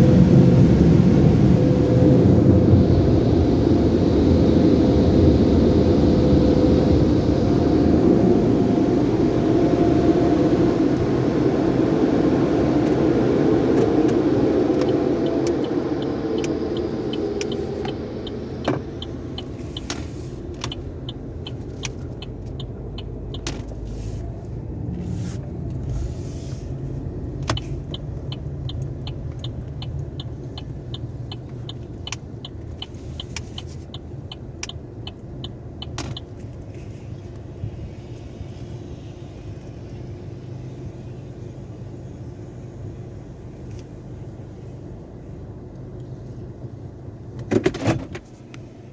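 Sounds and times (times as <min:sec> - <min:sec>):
steady mechanical ticking: 0:14.8 - 0:23.5, 0:27.5 - 0:36.3.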